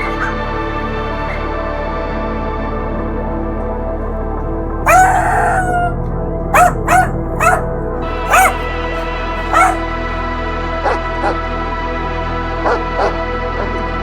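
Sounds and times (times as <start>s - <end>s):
dog barking: 0.0s - 1.6s, 4.8s - 10.2s
background music: 0.0s - 14.0s.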